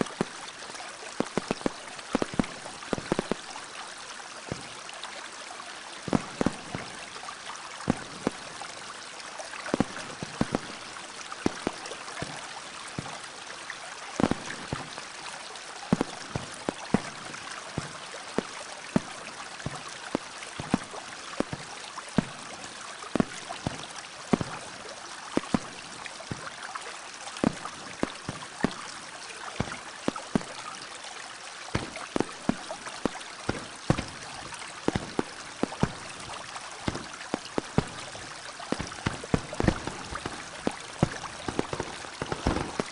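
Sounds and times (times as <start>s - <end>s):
running water: 0.0s - 42.9s
sharp clicks and pops: 31.8s - 42.9s.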